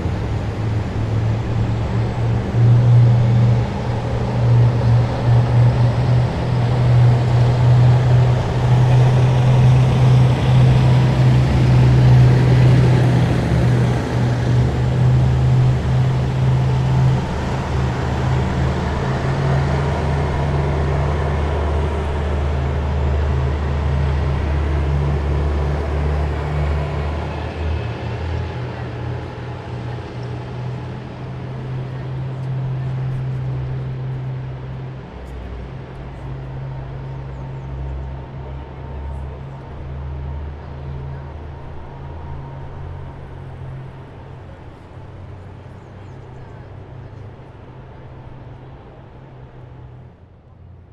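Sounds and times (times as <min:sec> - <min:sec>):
heavy vehicles driving past: 0:00.0 - 0:50.9.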